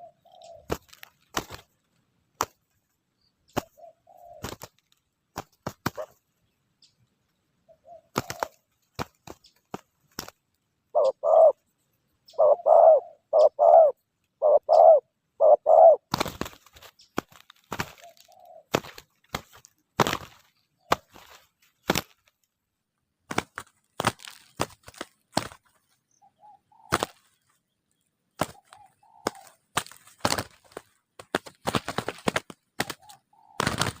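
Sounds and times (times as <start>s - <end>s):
dove cooing: 0.0s - 1.0s, 3.6s - 4.7s, 7.7s - 8.7s, 10.9s - 11.7s, 12.3s - 16.1s, 17.8s - 18.9s, 26.2s - 27.2s, 28.4s - 29.7s, 32.0s - 34.0s
sharp cracks and knocks: 0.7s - 1.7s, 2.4s - 2.7s, 8.2s - 10.5s, 16.1s - 22.5s, 23.2s - 25.8s, 26.9s - 27.3s, 28.3s - 34.0s.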